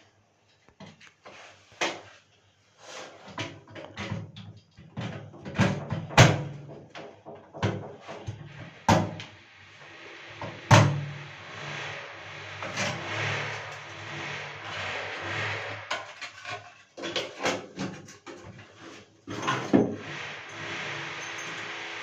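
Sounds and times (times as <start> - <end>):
sharp knocks and clatter: 3.3 - 9.3, 12.5 - 22.0
rushing hiss: 8.1 - 16.2, 20.0 - 22.0.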